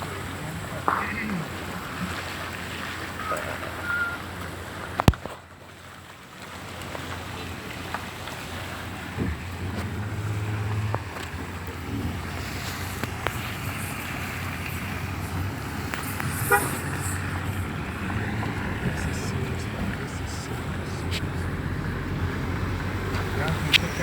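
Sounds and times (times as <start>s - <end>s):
vehicle engine running: 7.3s - 24.0s
horn toot: 12.0s - 21.4s.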